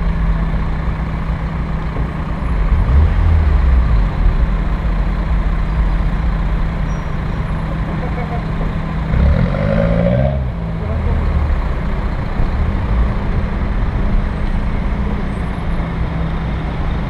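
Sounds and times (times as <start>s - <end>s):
car engine running: 0.0s - 9.4s.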